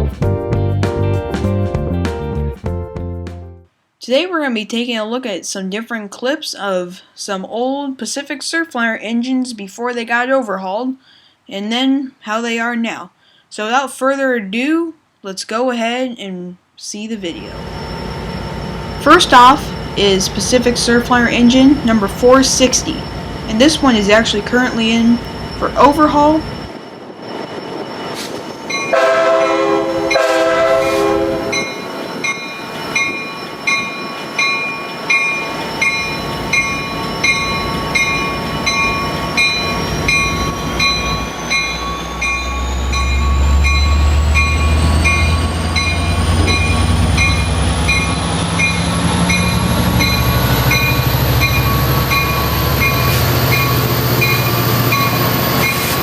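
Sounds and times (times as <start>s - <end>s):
diesel locomotive rumble: 17.2s - 26.7s, 28.7s - 56.0s
crossing bell ringing: 17.2s - 56.0s
high whine: 17.2s - 56.0s
locomotive horn blasts: 28.9s - 31.8s.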